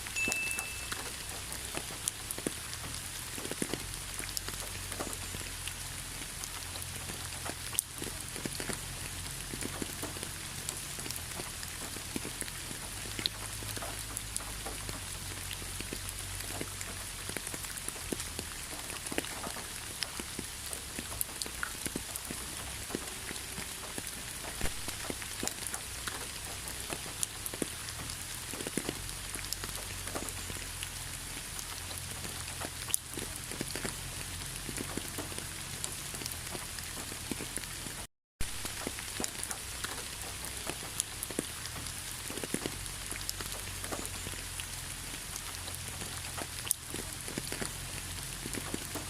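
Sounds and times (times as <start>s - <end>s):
raindrops clicking: 0.0s - 49.0s
steady rain hiss: 0.0s - 49.0s.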